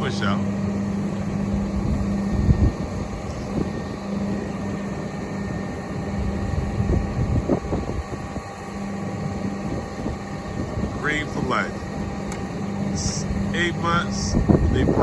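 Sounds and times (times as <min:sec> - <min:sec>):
truck engine humming: 0:00.0 - 0:15.0.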